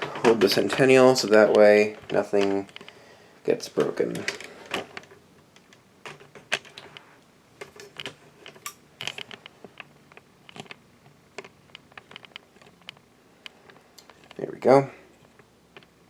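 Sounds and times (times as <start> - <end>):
pull chain clicks and knocks: 7.6 - 10.8, 11.4 - 14.4.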